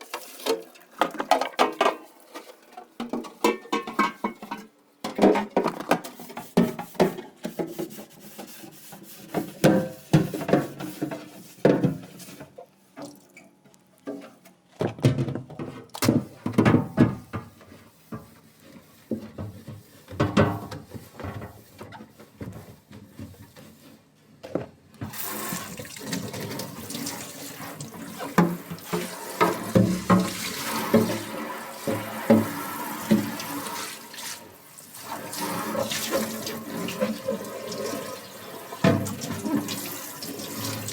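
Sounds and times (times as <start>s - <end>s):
dishes knocking and clattering: 1.0s - 7.9s, 9.4s - 12.1s, 14.8s - 17.6s, 28.2s - 33.4s.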